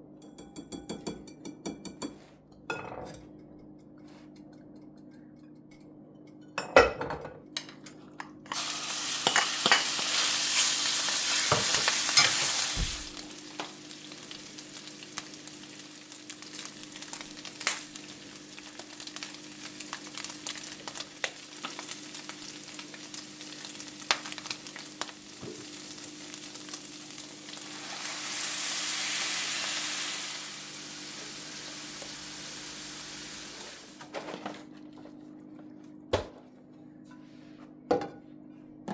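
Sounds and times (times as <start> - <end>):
food frying in a pan: 8.5 - 34.1.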